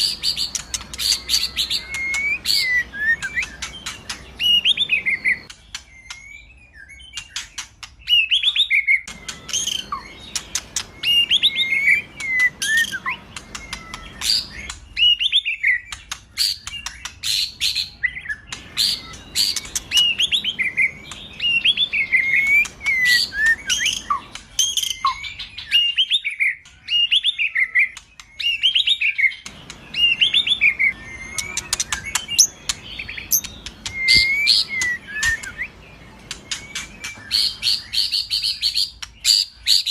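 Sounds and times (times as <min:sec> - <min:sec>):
bird singing whistled phrases: 0:00.0 - 0:39.9
sharp ticking bird notes: 0:00.0 - 0:39.9.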